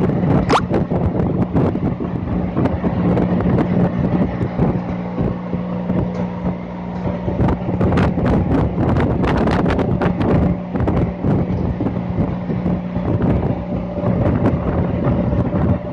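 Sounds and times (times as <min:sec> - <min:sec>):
low hum: 0:00.0 - 0:15.9
wind buffeting microphone: 0:00.0 - 0:15.9.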